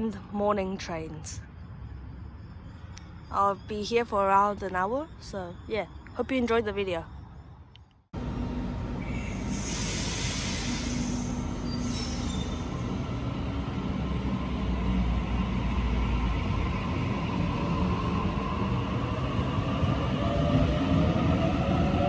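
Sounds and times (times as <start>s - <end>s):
train rumble: 8.2s - 22.0s
hiss: 9.2s - 12.7s.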